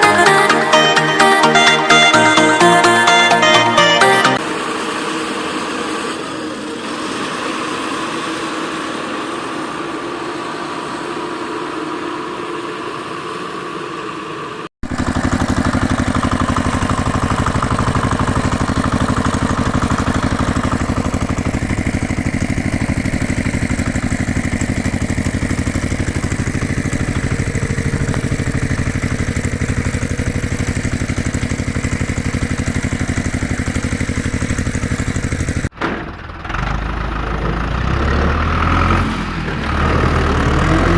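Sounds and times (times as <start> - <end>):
engine idling: 14.8 - 40.9.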